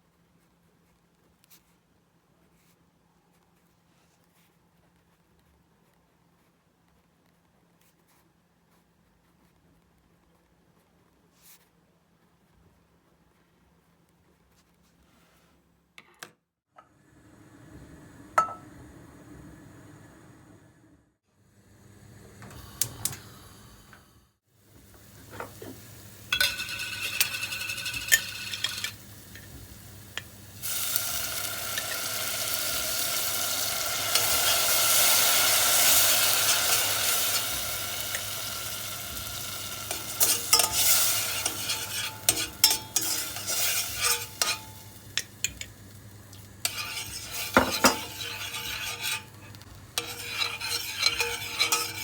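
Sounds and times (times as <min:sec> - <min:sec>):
food sizzling in a pan: 0:24.6 - 0:52.0
utensil stirring and clicking on pan: 0:25.0 - 0:52.0.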